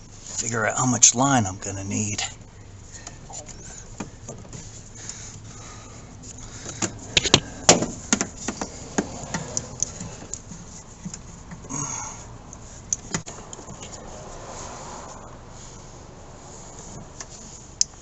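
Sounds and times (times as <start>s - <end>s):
rustle: 2.0s - 18.0s
rubber hose knocking and clicking: 6.6s - 11.7s.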